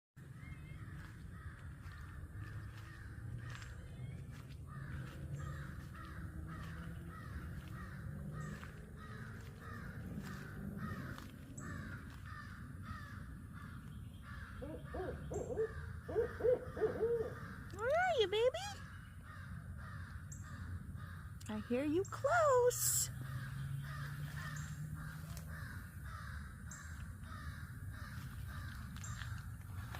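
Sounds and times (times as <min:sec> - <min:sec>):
owl hooting: 0:14.6 - 0:17.7.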